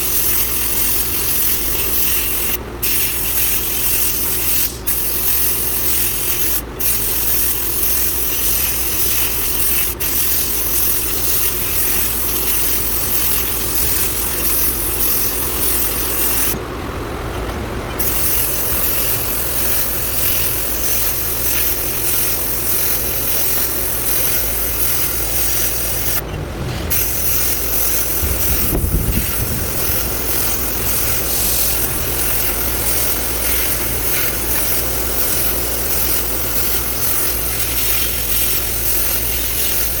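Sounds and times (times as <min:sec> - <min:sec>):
sandblaster hissing: 0:00.0 - 0:16.6, 0:18.0 - 0:40.0.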